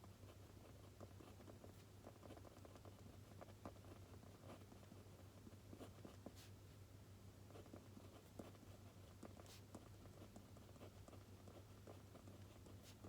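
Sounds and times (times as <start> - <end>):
pen writing on paper: 0.4 - 4.7, 7.5 - 13.0.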